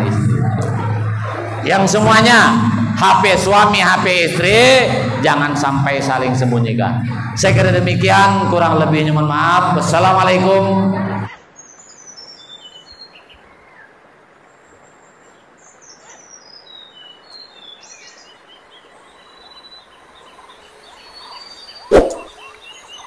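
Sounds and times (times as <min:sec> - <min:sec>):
birds chirping: 0:00.0 - 0:23.0
steady background hiss: 0:00.0 - 0:23.0.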